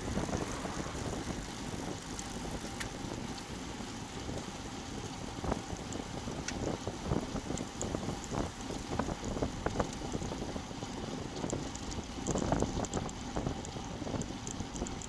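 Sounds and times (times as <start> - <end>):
wind buffeting microphone: 0.0 - 15.0
faint light ticks: 2.1 - 3.5, 5.8 - 6.8, 7.5 - 10.4, 11.3 - 15.0.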